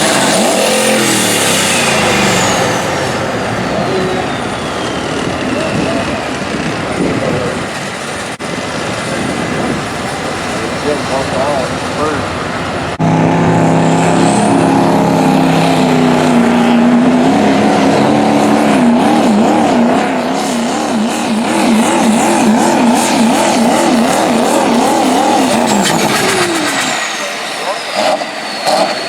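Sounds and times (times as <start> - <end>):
diesel truck engine at full throttle: 0.0 - 29.0
high descending whistle: 0.7 - 6.4.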